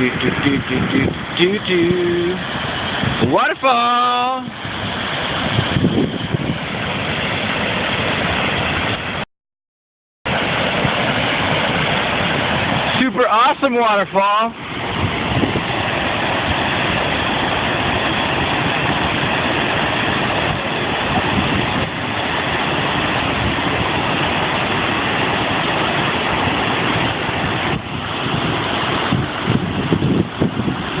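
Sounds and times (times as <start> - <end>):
waterfall rushing: 0.0 - 9.2, 10.3 - 31.0
low rumbling: 10.3 - 31.0.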